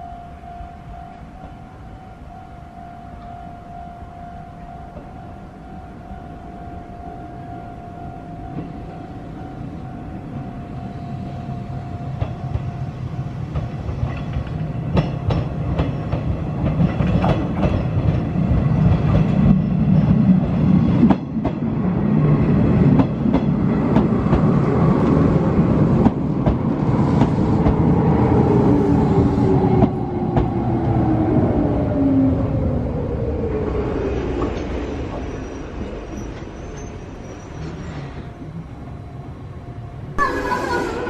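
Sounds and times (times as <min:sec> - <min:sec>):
train passing: 0:00.0 - 0:41.0
train wheels clacking: 0:12.1 - 0:21.7.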